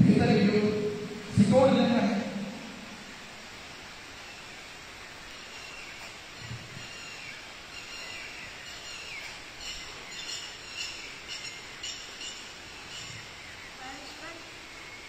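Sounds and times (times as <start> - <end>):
steady background hiss: 0.0 - 15.0
small birds chirping: 4.1 - 15.0.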